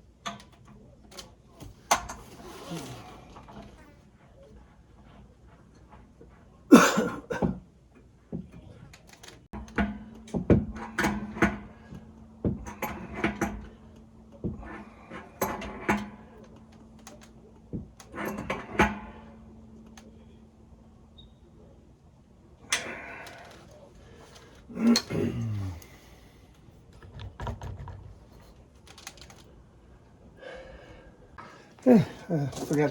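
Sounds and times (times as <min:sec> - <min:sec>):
knocks and clattering of plumbing parts: 0:06.8 - 0:07.6, 0:08.3 - 0:20.1, 0:22.7 - 0:29.4.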